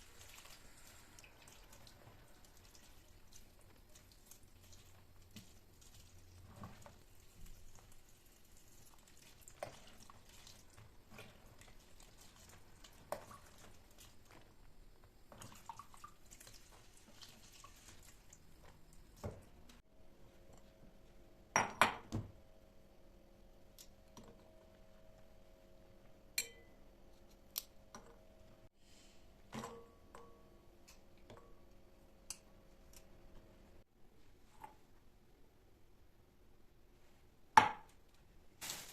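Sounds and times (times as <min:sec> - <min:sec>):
dishes and utensils clinking: 0:26.4 - 0:26.8.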